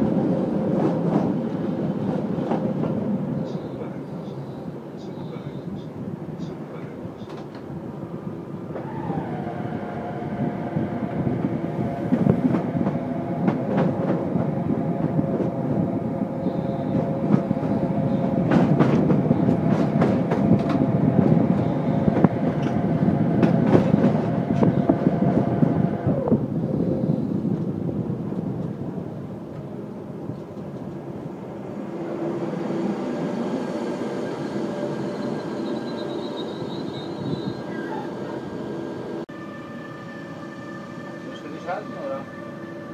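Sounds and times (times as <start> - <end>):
train rolling rumble: 0.0 - 42.9.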